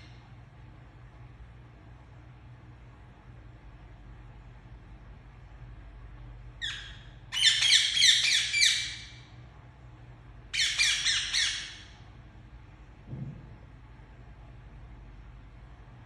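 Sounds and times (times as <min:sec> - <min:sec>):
parakeet squawking: 0:06.6 - 0:09.2, 0:10.5 - 0:12.0.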